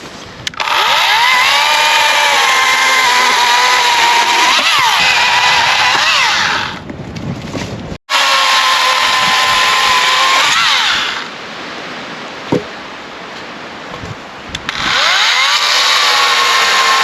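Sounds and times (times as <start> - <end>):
power tool motor running: 0.6 - 6.8, 14.7 - 17.0.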